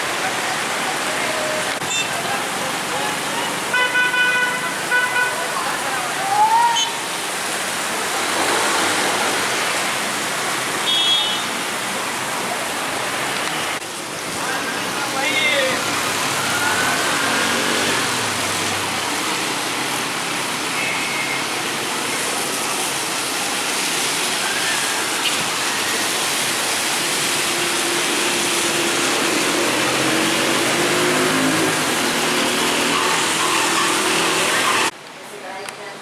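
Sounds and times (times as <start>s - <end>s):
heavy rain hissing: 0.0s - 34.9s
vehicle engine passing: 15.8s - 19.0s, 27.9s - 34.9s.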